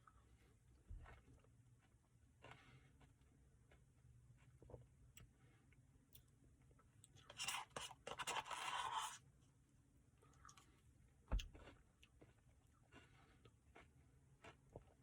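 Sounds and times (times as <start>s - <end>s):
spoon scraping ice cream cup: 7.2s - 9.2s.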